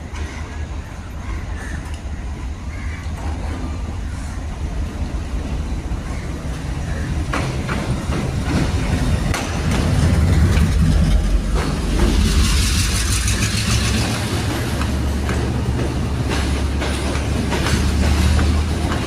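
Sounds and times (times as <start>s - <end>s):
train rumbling on rails: 0.0s - 19.0s
sharp knocks of train wheels: 6.9s - 19.0s.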